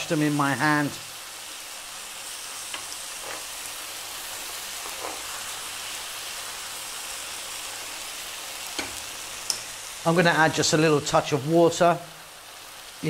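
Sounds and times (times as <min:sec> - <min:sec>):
sauce sizzling in a frying pan: 0:00.0 - 0:13.0
wooden spoon scraping a pan: 0:02.7 - 0:03.7, 0:04.5 - 0:05.6.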